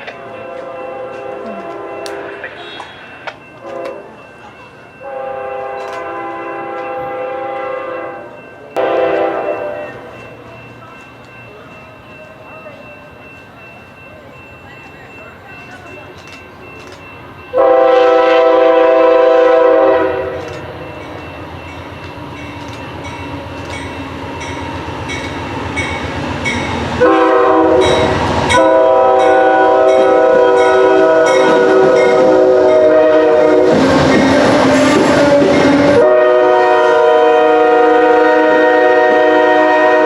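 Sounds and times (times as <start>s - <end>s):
locomotive air horn: 0.0s - 4.1s, 5.0s - 10.1s, 17.6s - 20.6s, 27.0s - 40.0s
approaching train rumble: 0.0s - 40.0s
passing train clatter: 0.0s - 40.0s.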